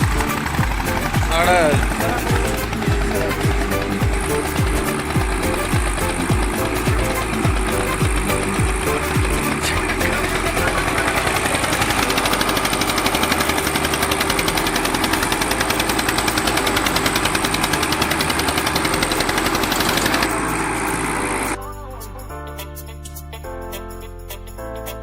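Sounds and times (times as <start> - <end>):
diesel tractor engine under load: 0.0 - 21.6.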